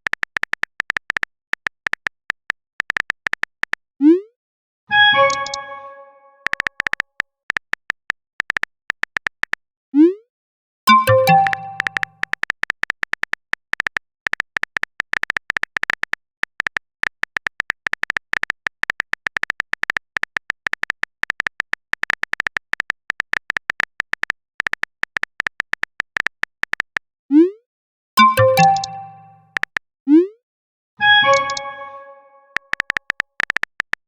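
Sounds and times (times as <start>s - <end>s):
phone keyboard typing clicks: 0.0s - 3.8s, 5.2s - 5.6s, 6.4s - 9.6s, 10.9s - 27.0s, 28.2s - 29.8s, 31.2s - 31.9s, 32.5s - 34.0s.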